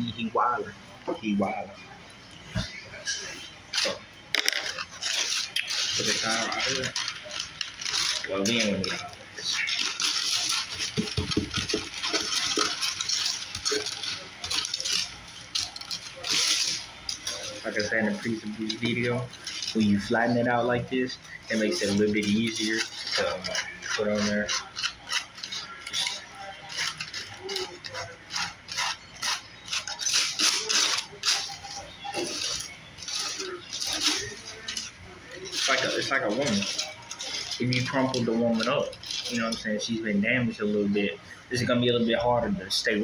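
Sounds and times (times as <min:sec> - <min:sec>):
aluminum foil crinkling: 0:02.6 - 0:43.0.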